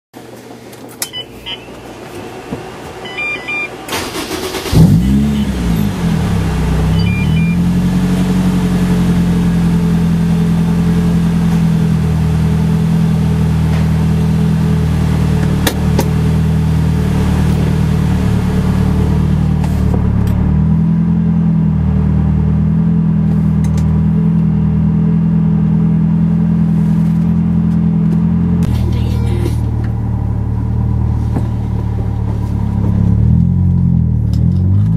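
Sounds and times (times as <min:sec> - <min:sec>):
car engine starting and idling: 0:00.2 - 0:34.9
short beeps: 0:01.0 - 0:01.8, 0:03.0 - 0:03.7, 0:04.9 - 0:05.9, 0:06.9 - 0:07.6.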